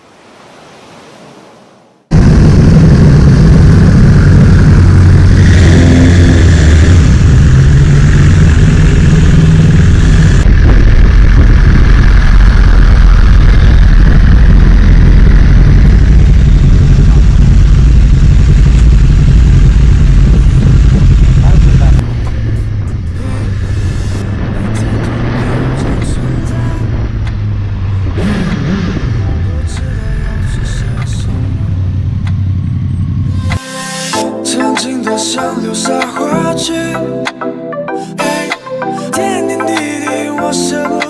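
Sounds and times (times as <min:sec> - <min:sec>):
motorcycle engine running: 0:02.1 - 0:33.5.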